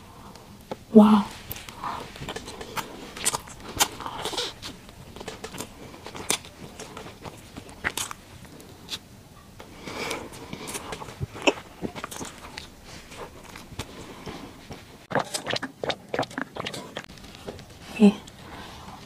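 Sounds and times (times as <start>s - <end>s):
chewing soft bread: 1.4s - 19.0s
wet mouth clicks and smacks: 1.6s - 6.5s, 15.1s - 17.7s.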